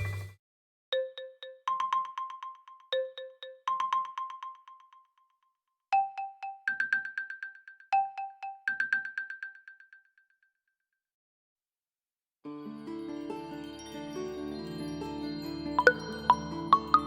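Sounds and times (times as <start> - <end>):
phone ringtone notes: 15.8 - 17.0.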